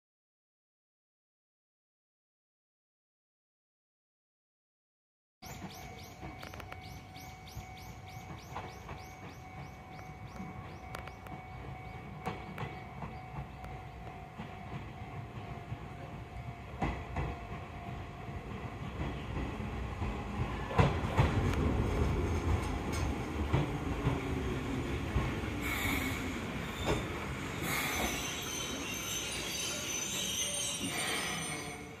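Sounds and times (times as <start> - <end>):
train brakes squealing: 5.4 - 13.9, 25.6 - 32.0
train wheels clicking over rail joints: 5.5 - 17.8, 18.5 - 29.6.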